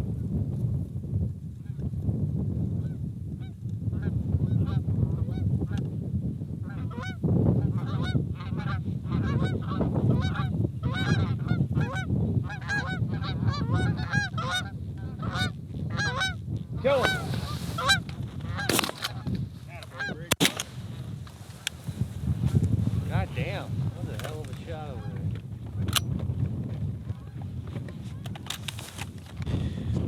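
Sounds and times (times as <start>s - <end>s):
geese honking: 7.8s - 20.6s.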